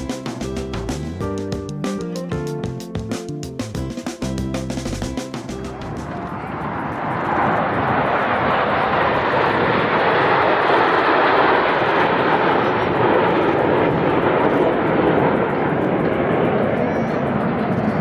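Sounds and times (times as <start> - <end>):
aircraft flying past: 6.0 - 18.0.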